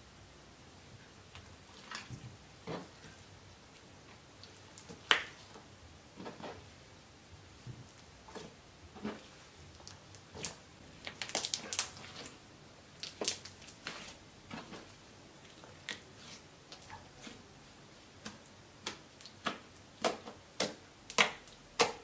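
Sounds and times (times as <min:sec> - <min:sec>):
slime squishing: 0:01.3 - 0:06.6, 0:07.8 - 0:22.0.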